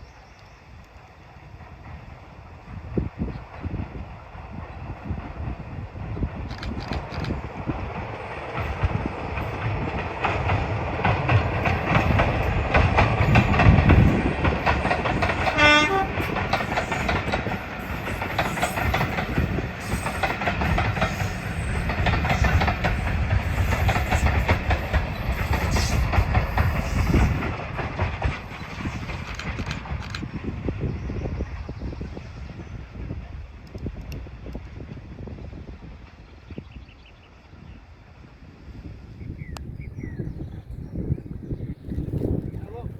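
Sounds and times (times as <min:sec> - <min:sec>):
train wheels clattering over rail joints: 0:06.3 - 0:30.5.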